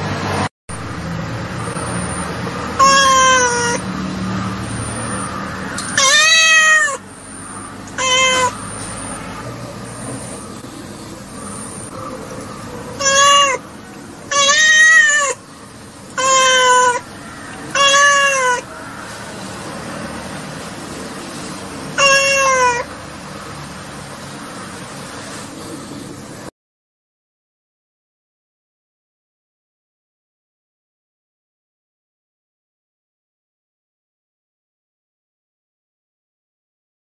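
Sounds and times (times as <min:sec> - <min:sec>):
kitten meowing: 0:02.8 - 0:03.8, 0:04.8 - 0:07.1, 0:07.9 - 0:09.4, 0:12.8 - 0:15.4, 0:16.1 - 0:18.7, 0:21.9 - 0:22.9.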